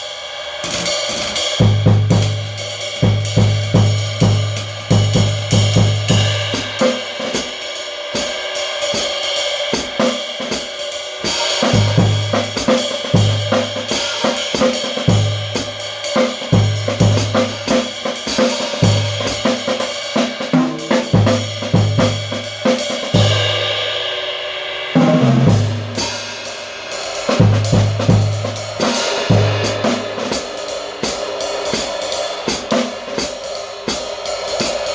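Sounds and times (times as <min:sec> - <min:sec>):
snare and hi-hat: 0:00.0 - 0:34.9
bass drum beats: 0:01.6 - 0:06.9, 0:11.6 - 0:23.5, 0:25.0 - 0:26.2, 0:27.4 - 0:30.3.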